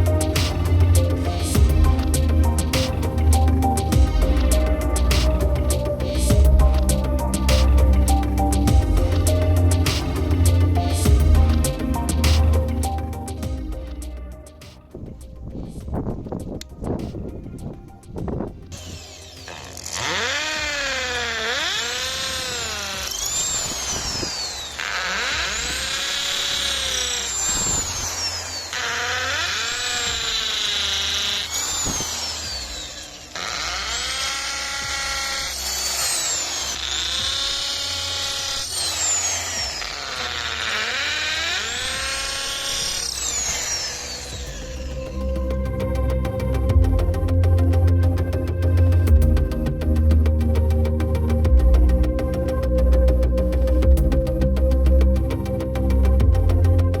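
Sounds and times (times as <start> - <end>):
impact drill motor whine: 18.7 - 45.6.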